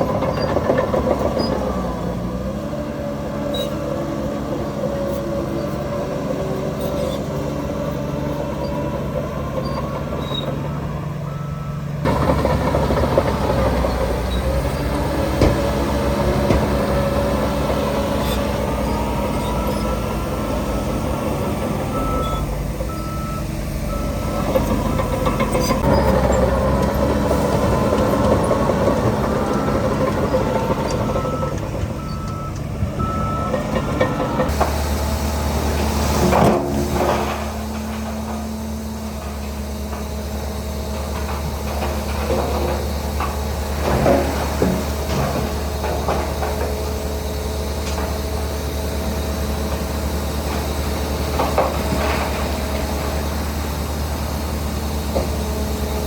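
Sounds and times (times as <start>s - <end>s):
heavy diesel machinery running: 0.0s - 56.0s
reversing alarm beeping: 9.4s - 12.5s, 17.1s - 26.5s, 27.3s - 34.5s.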